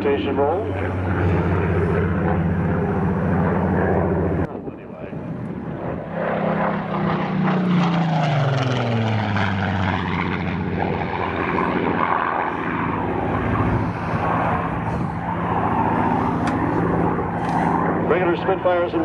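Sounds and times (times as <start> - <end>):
propeller plane engine passing: 0.0 - 19.0.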